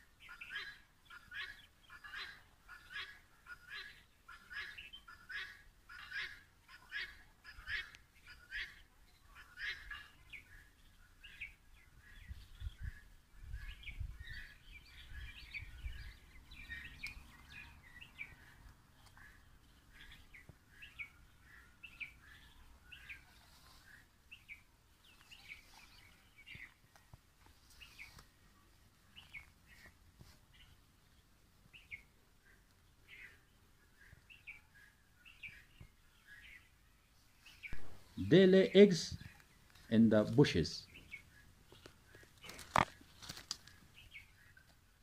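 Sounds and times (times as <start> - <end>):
birds chirping: 0.0 - 45.0
low wind rumble on microphone: 11.9 - 16.5.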